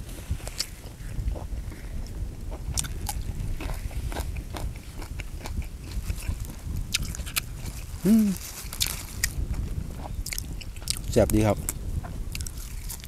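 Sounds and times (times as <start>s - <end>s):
person chewing food: 0.4s - 13.0s
mouth clicks: 6.9s - 9.4s.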